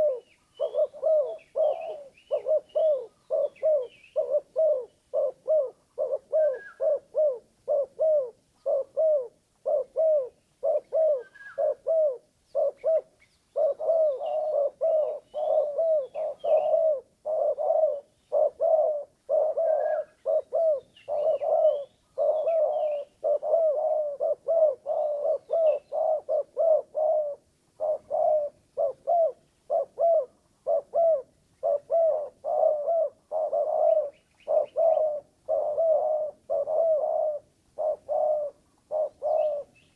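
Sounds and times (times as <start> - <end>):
small birds chirping: 0.0 - 5.1
dove cooing: 0.0 - 39.9.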